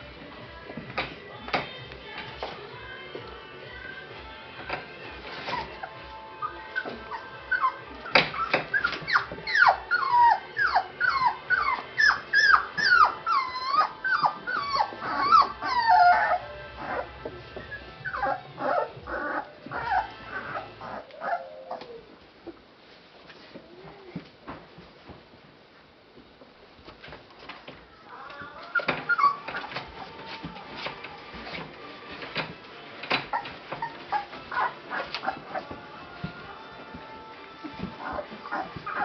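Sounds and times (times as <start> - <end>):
puppies whimpering: 4.7 - 22.6, 28.0 - 39.0.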